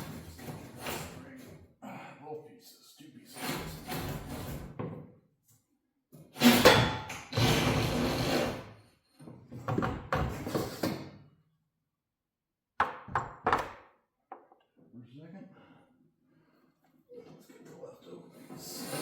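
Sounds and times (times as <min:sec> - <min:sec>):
metal scraping and rattling: 0:03.4 - 0:04.7.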